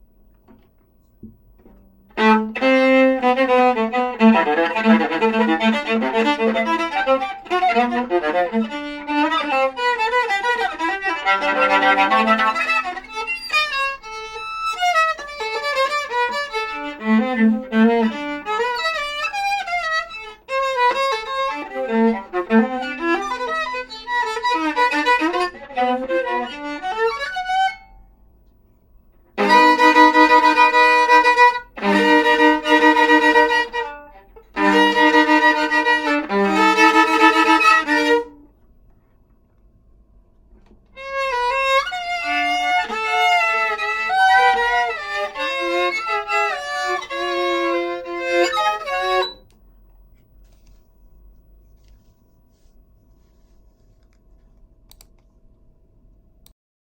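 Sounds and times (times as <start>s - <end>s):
solo viola playing: 1.6s - 28.0s, 29.3s - 38.5s, 41.0s - 49.5s.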